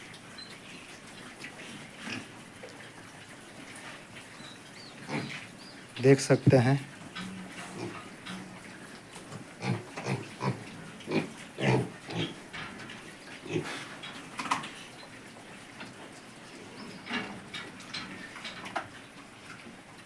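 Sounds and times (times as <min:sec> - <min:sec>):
piglets grunting: 0:04.9 - 0:08.6, 0:09.5 - 0:12.5, 0:13.4 - 0:14.0.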